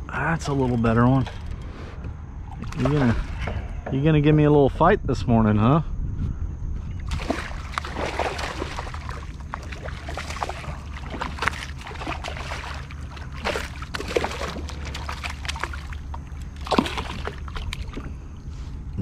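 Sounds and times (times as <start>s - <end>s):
low rumble: 0.0s - 19.0s
water splashing against kayak: 2.5s - 3.6s, 7.0s - 18.2s.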